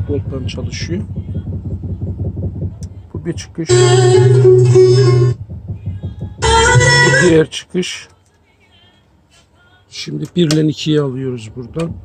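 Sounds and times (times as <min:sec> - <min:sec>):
plucked string music through speaker: 0:03.7 - 0:07.5.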